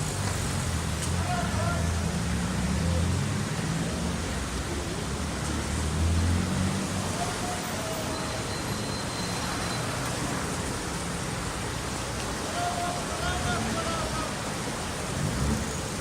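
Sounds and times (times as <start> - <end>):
passing vehicle engine rumble: 0.0 - 12.1
rain and tyres on wet road: 0.0 - 16.0.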